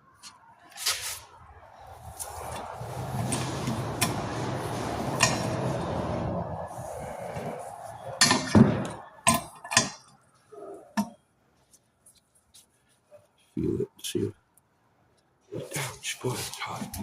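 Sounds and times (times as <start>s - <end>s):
steady rushing noise: 1.2s - 9.2s
sharp metallic clanks: 5.2s - 5.7s, 8.2s - 10.1s.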